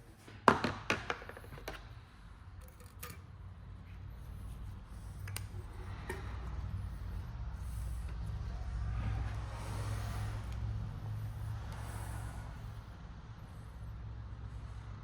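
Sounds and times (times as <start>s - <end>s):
metal tools clicking and knocking: 2.6s - 3.4s.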